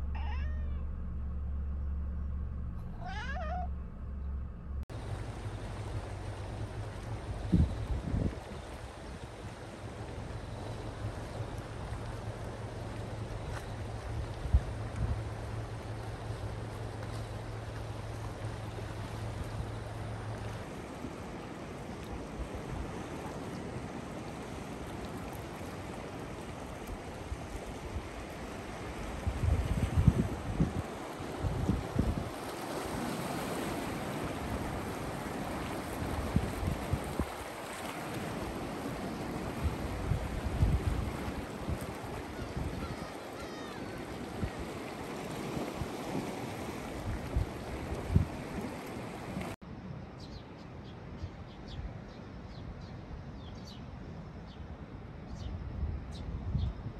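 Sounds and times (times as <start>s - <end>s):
low steady hum: 0.0s - 23.1s
small waves on rocks: 4.9s - 49.6s
wind on microphone: 6.9s - 10.1s, 13.4s - 15.6s, 26.8s - 49.5s, 55.3s - 56.9s
wind thumping on microphone: 7.0s - 9.4s, 29.1s - 32.4s, 35.7s - 37.5s, 38.2s - 43.1s.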